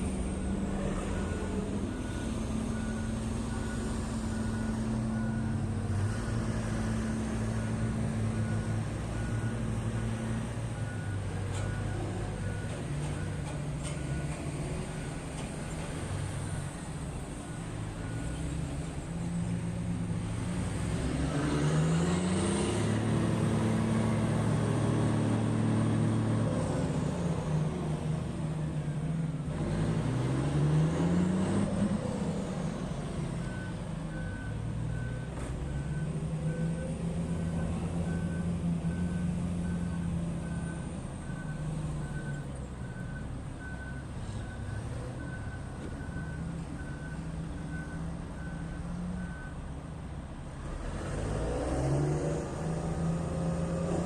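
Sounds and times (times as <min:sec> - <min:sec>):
diesel machinery engine revving: 0:00.0 - 0:49.6, 0:50.3 - 0:54.0
reversing alarm beeping: 0:00.2 - 0:05.7.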